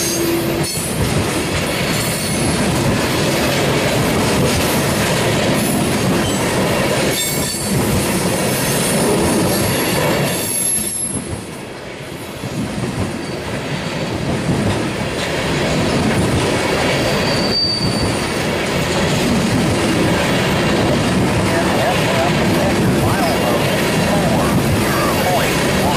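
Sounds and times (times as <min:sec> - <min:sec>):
steel wheels rumbling on rail: 0:00.0 - 0:25.9
high-pitched wheel squeals: 0:10.4 - 0:11.3, 0:17.2 - 0:18.3.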